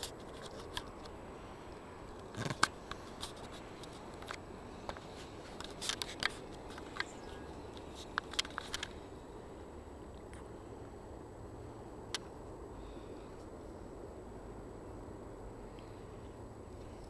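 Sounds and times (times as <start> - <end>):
camera handling clicks and rustles: 0.0 - 1.2, 2.1 - 9.0
low background hiss: 0.0 - 17.0.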